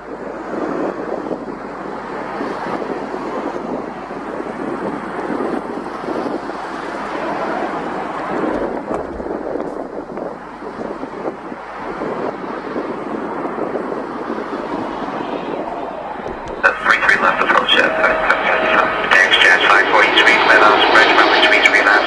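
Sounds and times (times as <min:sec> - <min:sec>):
jet engines roaring: 0:00.7 - 0:22.0
deep rumble: 0:13.2 - 0:22.0.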